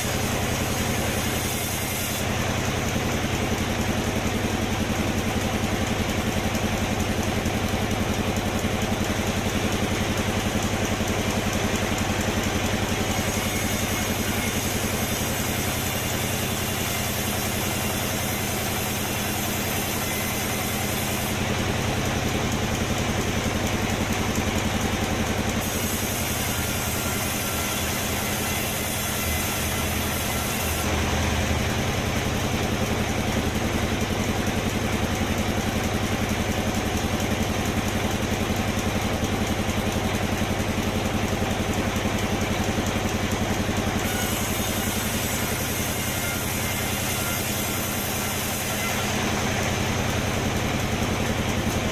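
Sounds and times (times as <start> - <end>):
sawmill machinery humming: 0.0 - 51.9.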